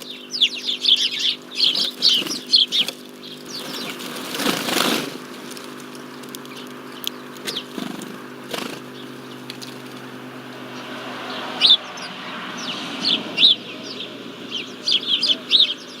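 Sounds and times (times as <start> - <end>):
birds chirping: 0.0 - 16.0
steady low hum: 0.0 - 16.0
wing flutters: 0.8 - 10.7.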